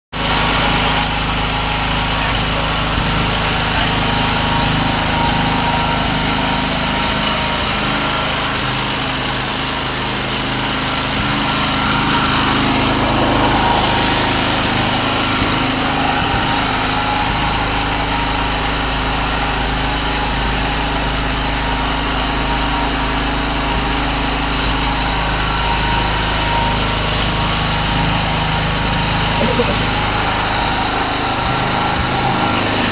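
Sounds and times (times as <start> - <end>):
portable generator running: 0.1 - 32.9.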